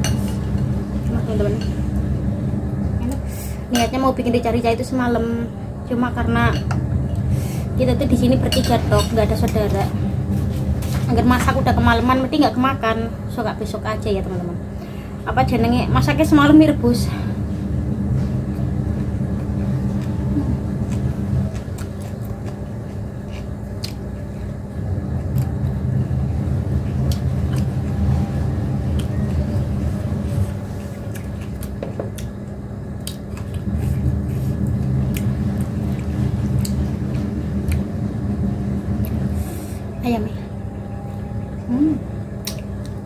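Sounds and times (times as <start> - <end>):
low mechanical hum: 0.0 - 43.0
person chewing food: 19.3 - 25.8, 30.4 - 37.9.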